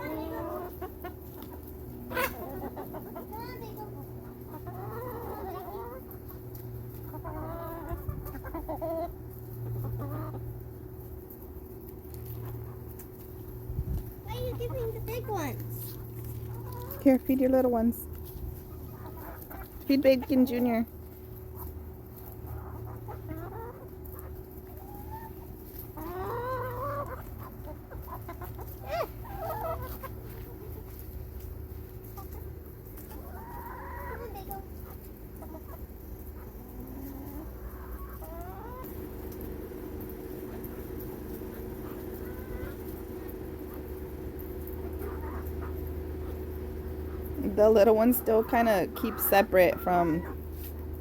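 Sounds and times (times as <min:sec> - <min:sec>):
chicken squawk: 0:00.0 - 0:10.5, 0:18.6 - 0:20.8, 0:22.4 - 0:31.0, 0:33.0 - 0:38.9, 0:40.5 - 0:47.5
hens clucking: 0:00.0 - 0:51.0
steady low hum: 0:00.0 - 0:51.0.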